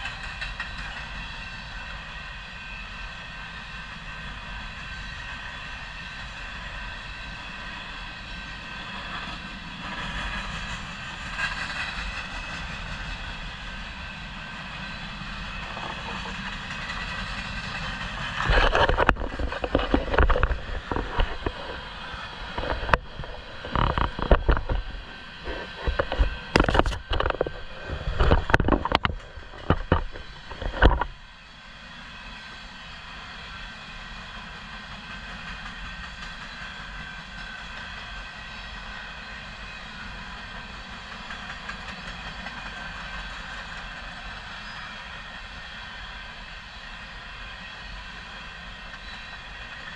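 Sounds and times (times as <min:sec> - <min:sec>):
freight train rolling on rails: 0:00.0 - 0:49.9
high ringing rail tones: 0:00.0 - 0:49.9
loud irregular surges and knocks: 0:15.1 - 0:31.2.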